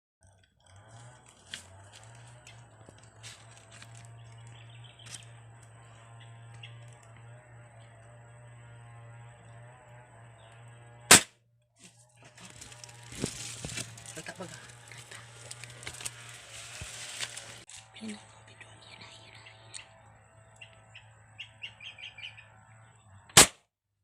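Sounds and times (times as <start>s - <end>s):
air rifle shot: 11.1s - 11.3s, 23.4s - 23.6s.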